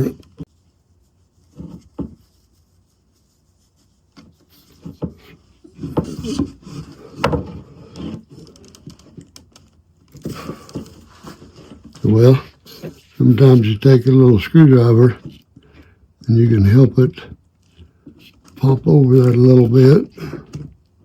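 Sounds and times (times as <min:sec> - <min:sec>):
small wooden knocks: 0:04.2 - 0:12.0.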